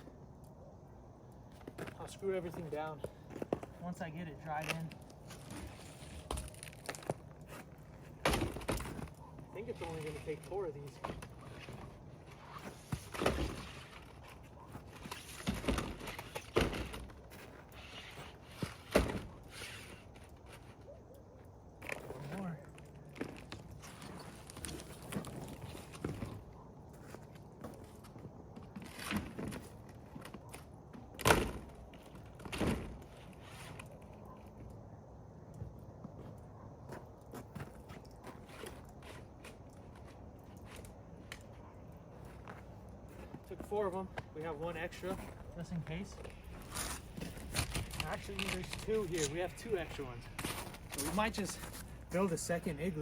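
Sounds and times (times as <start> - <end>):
plastic roofing panels thunking: 15.2 - 17.2.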